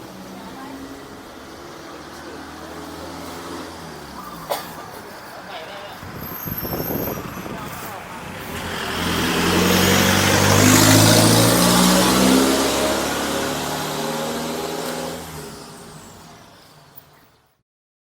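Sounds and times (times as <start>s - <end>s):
vehicle driving past: 5.9s - 17.0s.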